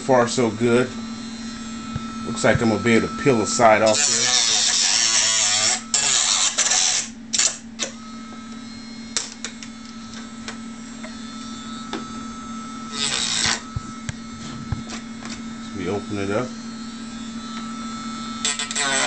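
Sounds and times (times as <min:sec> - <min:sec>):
rotary tool cutting: 0:01.9 - 0:08.0, 0:12.9 - 0:13.9, 0:18.4 - 0:19.0.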